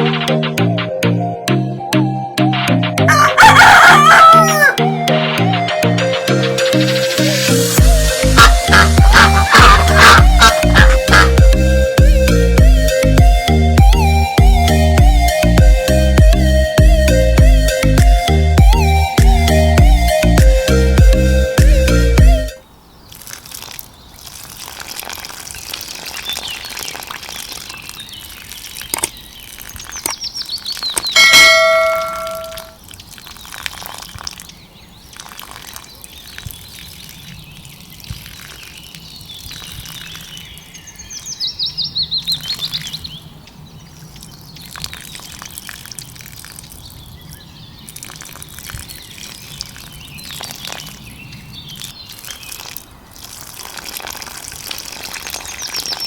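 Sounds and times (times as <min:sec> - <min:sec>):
steady watery hiss: 0:07.0 - 0:11.4, 0:22.9 - 0:30.7, 0:51.6 - 0:56.0
birds chirping: 0:07.6 - 0:11.6, 0:25.6 - 0:33.6, 0:34.3 - 0:53.4, 0:54.9 - 0:56.0
loud tonal bird call: 0:07.8 - 0:11.4, 0:30.8 - 0:32.8.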